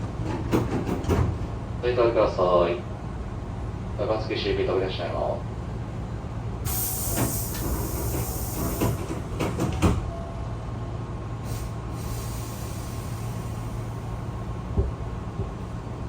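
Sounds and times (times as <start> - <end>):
low train hum: 0.0 - 16.0
train door air hiss: 6.6 - 10.1, 11.4 - 14.3.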